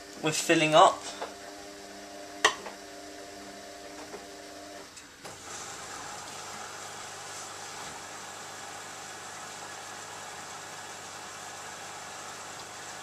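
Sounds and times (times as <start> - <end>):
dishwasher machine hum: 0.0 - 13.0
water filling hiss: 5.3 - 13.0.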